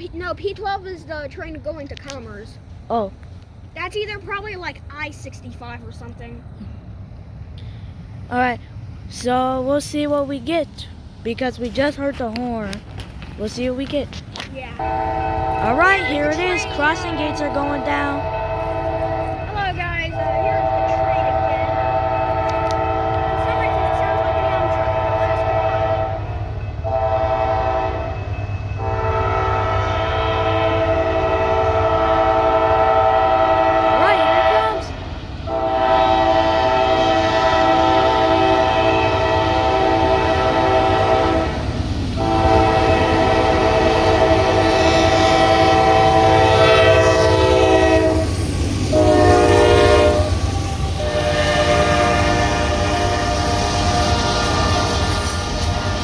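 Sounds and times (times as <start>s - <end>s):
train rumbling: 0.0s - 56.0s
locomotive horn blasts: 14.8s - 56.0s.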